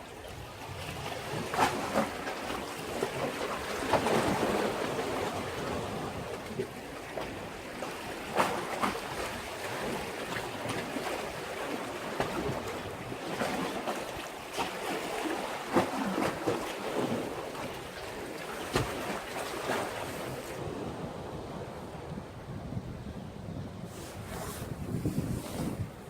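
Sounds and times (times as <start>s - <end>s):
waves washing against breakwater: 0.0s - 26.0s
water splashes: 8.3s - 20.7s
wind on microphone: 20.0s - 26.0s.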